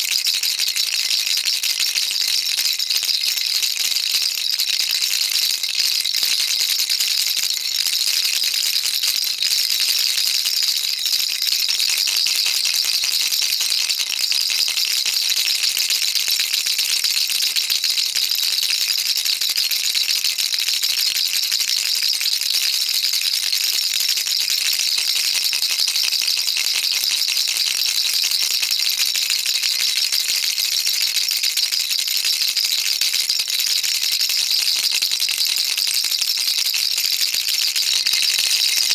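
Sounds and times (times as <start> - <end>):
baby rattle shaken: 37.8 - 38.9.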